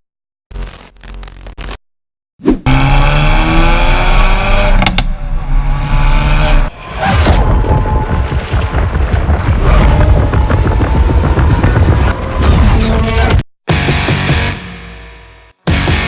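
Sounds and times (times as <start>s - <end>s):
car engine accelerating: 2.7s - 13.4s.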